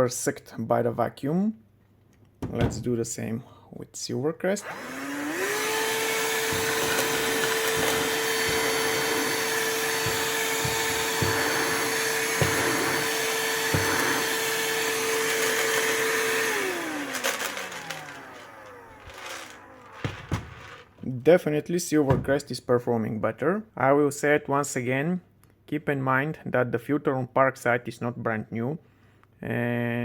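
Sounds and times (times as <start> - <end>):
vacuum cleaner motor whine: 4.6 - 21.0.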